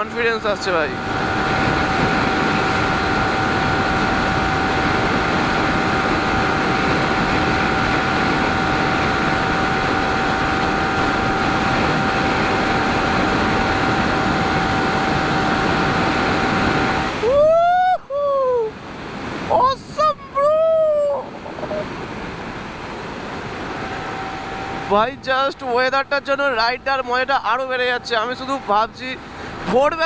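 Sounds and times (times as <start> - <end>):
wind rush over microphone: 0.0 - 30.0.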